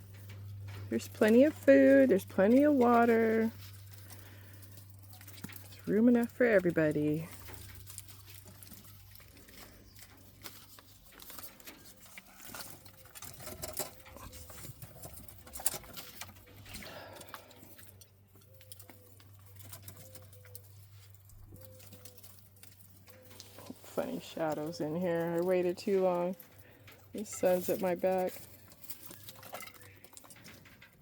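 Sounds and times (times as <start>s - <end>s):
quail pecking and scratching: 0.0s - 31.0s.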